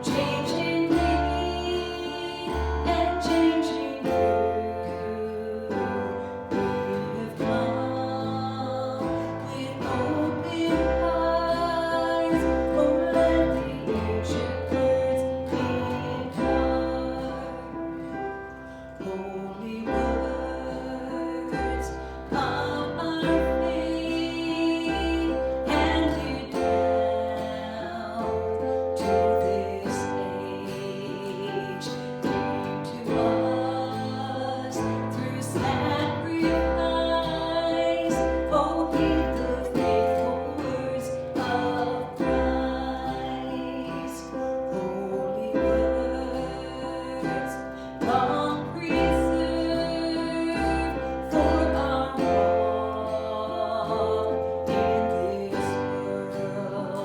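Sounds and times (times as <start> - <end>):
bass line: 0.0 - 31.3
guitar: 0.0 - 57.0
person singing: 0.0 - 57.0.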